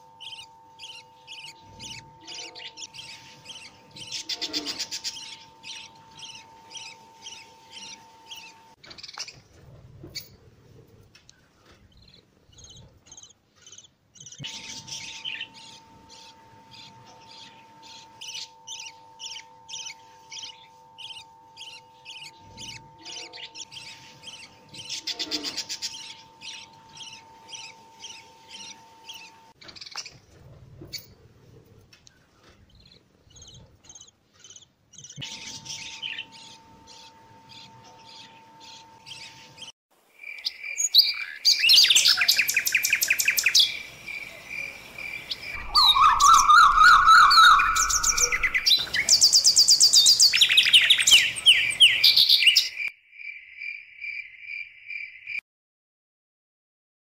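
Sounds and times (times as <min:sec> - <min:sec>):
loud bird calls and trills: 0:00.0 - 0:10.5, 0:11.2 - 0:31.2, 0:32.0 - 0:55.4
chicks begging peeps: 0:42.1 - 0:52.7.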